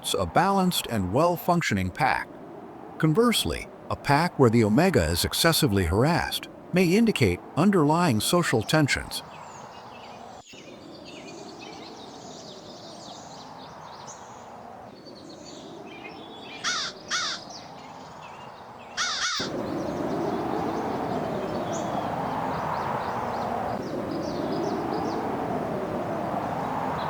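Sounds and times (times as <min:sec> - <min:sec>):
small birds chirping: 0:02.1 - 0:27.0
crow cawing: 0:16.6 - 0:17.4, 0:19.0 - 0:19.6.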